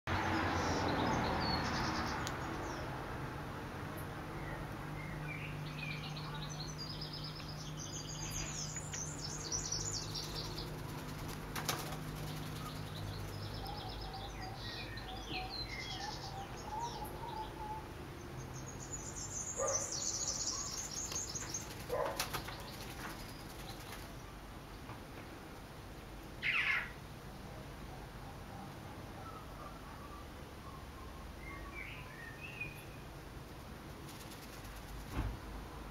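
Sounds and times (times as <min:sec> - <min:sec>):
high quick chirping birdsong: 0:00.1 - 0:03.0, 0:03.9 - 0:24.9, 0:26.4 - 0:27.0
bird wings fluttering: 0:10.2 - 0:13.0, 0:21.1 - 0:24.2, 0:34.0 - 0:35.4.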